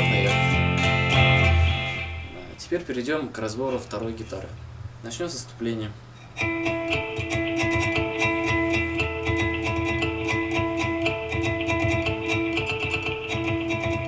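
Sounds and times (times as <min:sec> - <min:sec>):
ringing guitar harmonics: 0:00.0 - 0:03.0, 0:06.1 - 0:14.0
strummed guitar accompaniment: 0:00.0 - 0:03.0, 0:06.1 - 0:14.0.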